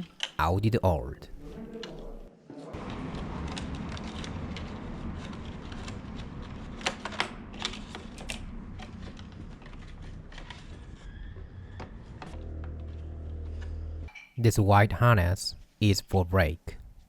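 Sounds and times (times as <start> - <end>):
plastic parts clicking and tapping: 0.0 - 0.4.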